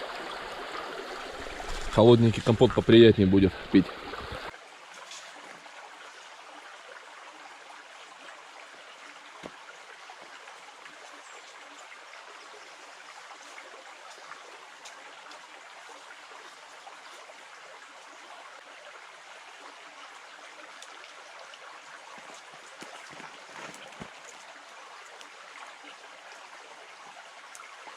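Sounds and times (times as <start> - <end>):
river water rushing: 0.0 - 4.5, 20.6 - 26.4.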